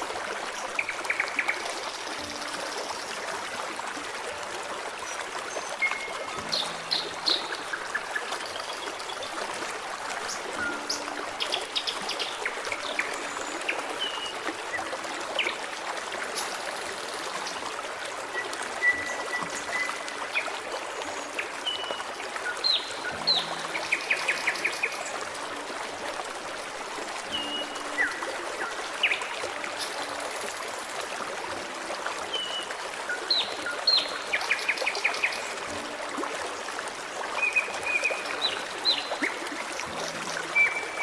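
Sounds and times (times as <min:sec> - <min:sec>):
stream running: 0:00.0 - 0:41.0
small birds singing: 0:05.1 - 0:09.4, 0:18.4 - 0:25.1, 0:32.3 - 0:35.6, 0:37.4 - 0:41.0.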